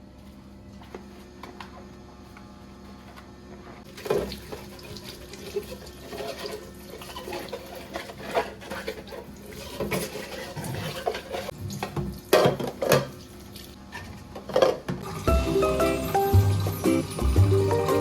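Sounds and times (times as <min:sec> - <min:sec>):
water running at sink: 0:03.9 - 0:13.8, 0:15.0 - 0:18.0.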